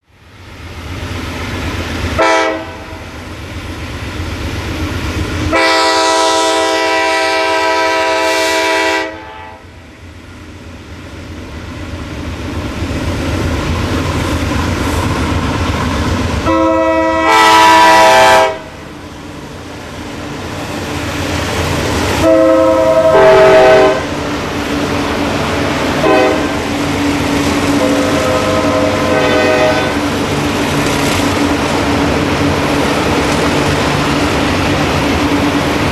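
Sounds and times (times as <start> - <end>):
diesel locomotive rumble: 0.1 - 35.9
locomotive horn blasts: 2.2 - 3.0, 5.5 - 9.7, 16.4 - 18.8, 22.2 - 24.1, 26.0 - 26.6, 27.8 - 30.1.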